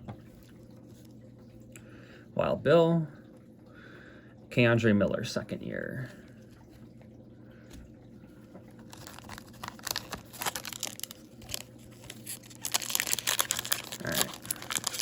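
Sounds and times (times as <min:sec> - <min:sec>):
foil wrapper tearing and crinkling: 0:08.9 - 0:15.0.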